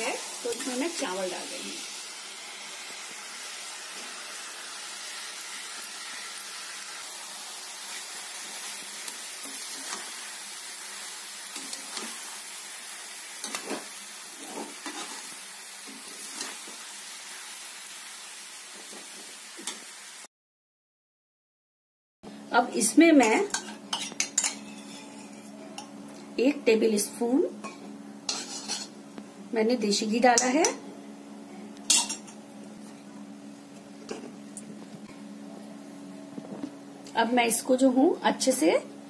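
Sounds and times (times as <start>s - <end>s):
food sizzling in hot oil: 0.0s - 20.3s, 22.8s - 29.2s, 29.8s - 30.8s, 31.9s - 33.6s
metal spatula scraping a pan: 11.5s - 12.4s, 13.4s - 16.8s, 23.2s - 25.6s, 28.3s - 29.0s.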